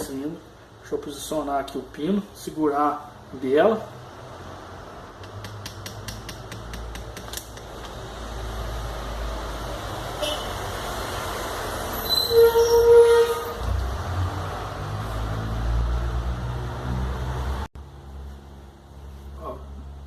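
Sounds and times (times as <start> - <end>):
short loud horn-like tone: 12.0 - 13.6.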